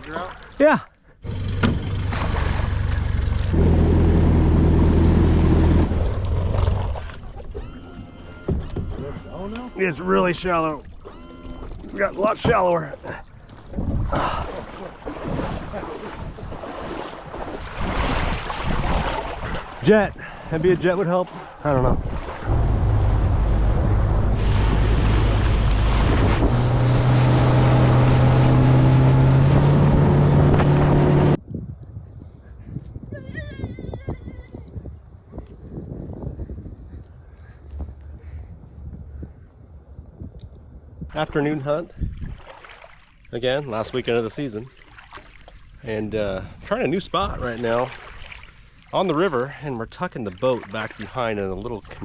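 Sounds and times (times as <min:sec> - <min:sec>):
outboard motor running: 0:01.2 - 0:31.4.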